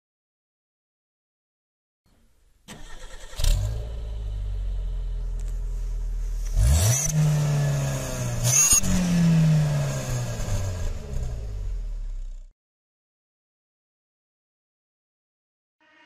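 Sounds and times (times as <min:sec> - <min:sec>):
engine starter cranking: 0:02.7 - 0:04.0
car engine idling and revving: 0:02.7 - 0:12.5.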